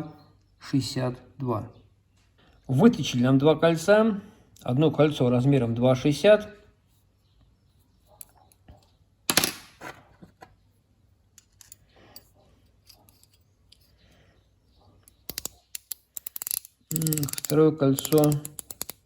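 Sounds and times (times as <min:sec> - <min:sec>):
metal parts clinking: 0:11.3 - 0:14.0, 0:15.0 - 0:19.0.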